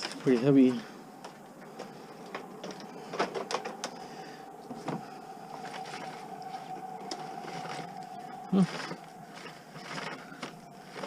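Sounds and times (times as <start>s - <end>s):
objects being handled: 0.0s - 11.0s
steady mid-pitched hum: 0.0s - 11.0s.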